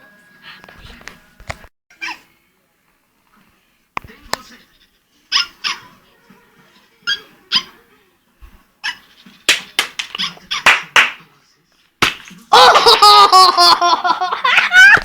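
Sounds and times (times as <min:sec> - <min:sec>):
dog barking: 0:05.3 - 0:05.9, 0:07.0 - 0:07.8.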